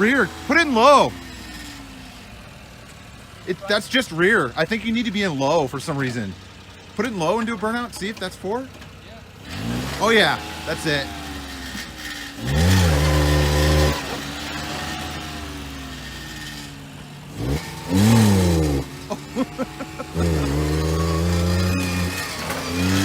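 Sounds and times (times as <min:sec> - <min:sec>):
small truck engine revving: 0:00.0 - 0:23.0.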